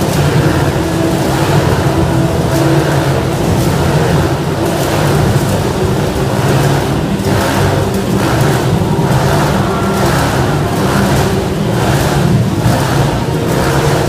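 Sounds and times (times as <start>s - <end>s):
motorcycle engines passing: 0.0s - 14.0s.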